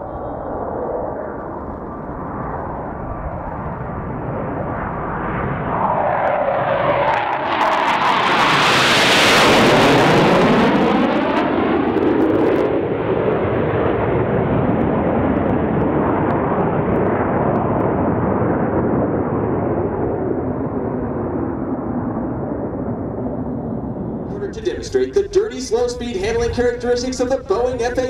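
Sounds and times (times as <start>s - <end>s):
jets flying past: 0.0s - 12.9s.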